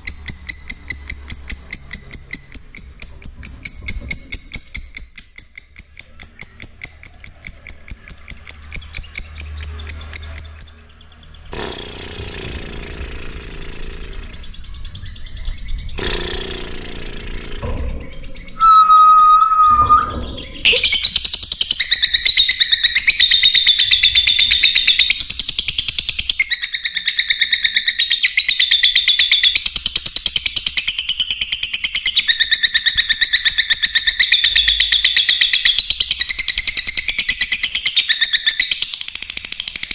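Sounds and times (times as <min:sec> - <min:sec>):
lovebird chirping: 0:00.0 - 0:39.9.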